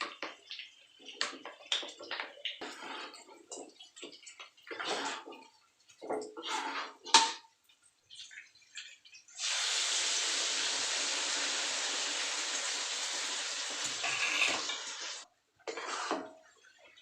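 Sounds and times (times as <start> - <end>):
water running from tap: 8.0 - 15.3.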